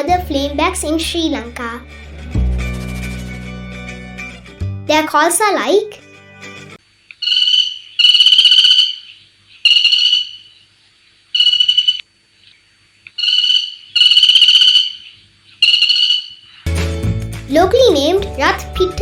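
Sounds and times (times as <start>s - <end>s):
woodpecker rattling calls: 7.2s - 10.6s, 11.4s - 12.0s, 13.1s - 16.6s.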